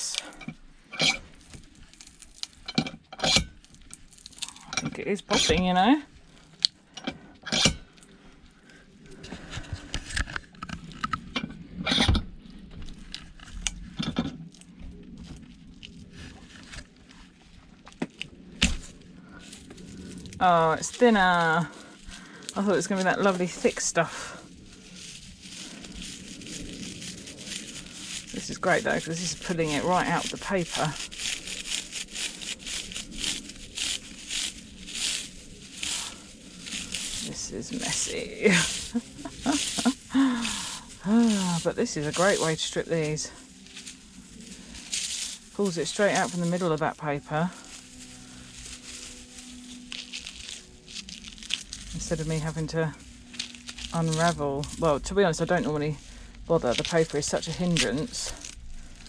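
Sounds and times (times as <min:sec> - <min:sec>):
metal scraping and knocking: 0:02.6 - 0:03.6
wire tearing from paper insulation: 0:25.0 - 0:46.8, 0:47.4 - 0:54.8.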